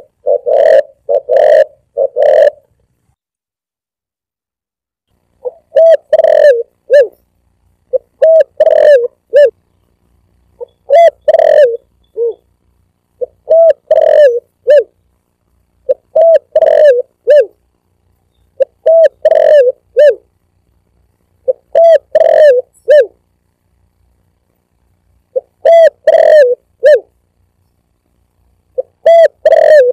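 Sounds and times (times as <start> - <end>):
dove cooing: 0.0 - 2.7, 5.4 - 7.2, 7.9 - 9.6, 10.6 - 12.5, 13.2 - 15.0, 15.8 - 17.6, 18.6 - 20.3, 21.4 - 23.2, 25.3 - 27.1, 28.7 - 29.9.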